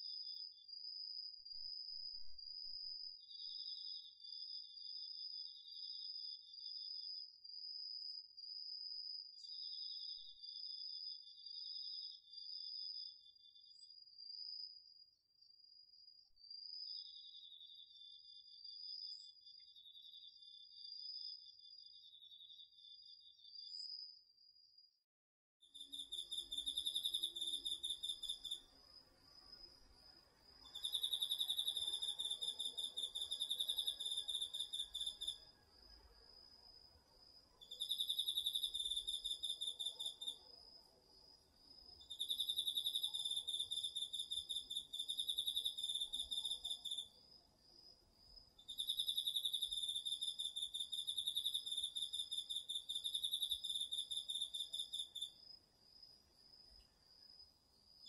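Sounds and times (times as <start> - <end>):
insect pulsed song: 25.7 - 47.9, 48.6 - 58.0.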